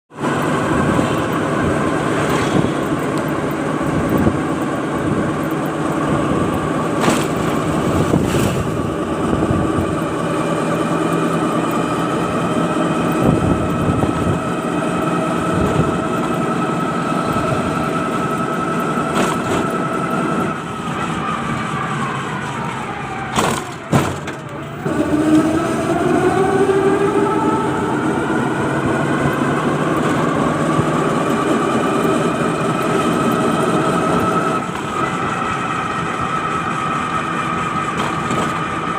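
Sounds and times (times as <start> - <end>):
engine running: 0.1 - 38.9.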